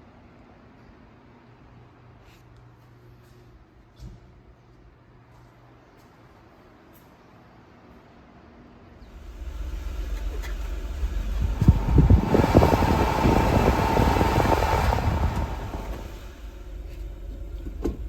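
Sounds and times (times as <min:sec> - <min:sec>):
truck engine rumbling: 0:09.1 - 0:18.0.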